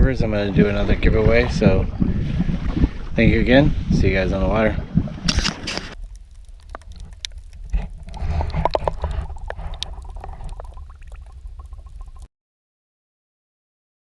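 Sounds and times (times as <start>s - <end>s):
wind rumbling on microphone: 0.0s - 12.3s
water lapping against hull: 0.3s - 4.0s, 4.8s - 12.3s.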